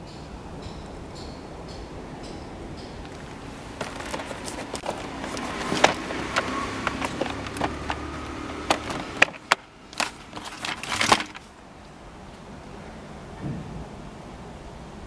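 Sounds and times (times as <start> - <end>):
plastic parts clicking and knocking: 3.0 - 11.6.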